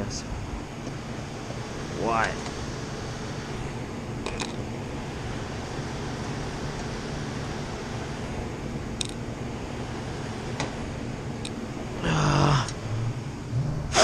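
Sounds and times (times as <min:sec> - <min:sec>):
low hum: 0:00.0 - 0:14.0
machinery rushing noise: 0:12.8 - 0:14.0.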